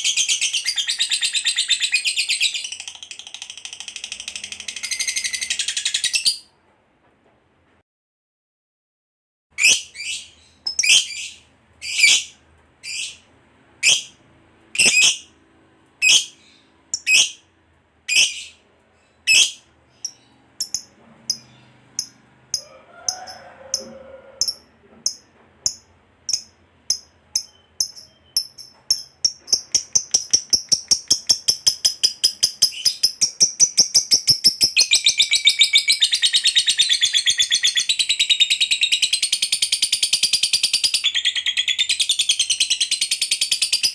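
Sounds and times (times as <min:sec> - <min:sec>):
lovebird screeching and chattering: 0:09.6 - 0:13.2, 0:14.8 - 0:15.3, 0:16.0 - 0:16.4, 0:17.0 - 0:17.4, 0:18.1 - 0:18.6, 0:19.3 - 0:19.6.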